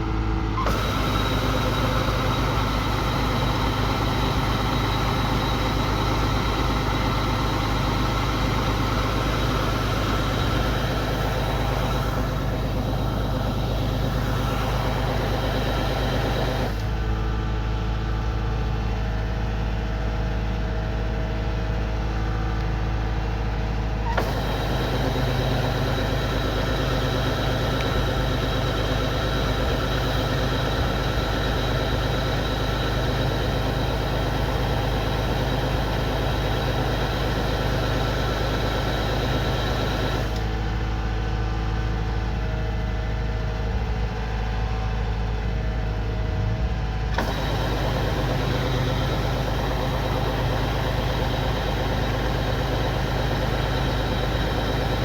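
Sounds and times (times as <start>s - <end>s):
combine harvester engine hum: 0.0s - 55.0s
threshing machinery noise: 0.5s - 17.2s, 24.0s - 40.7s, 47.1s - 55.0s.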